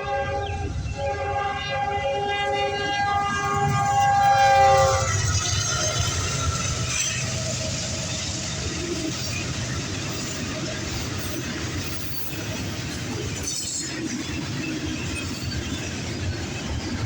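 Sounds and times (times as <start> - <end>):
locomotive air horn chord: 0.0 - 5.4
passing train rumble and rail noise: 0.0 - 17.0.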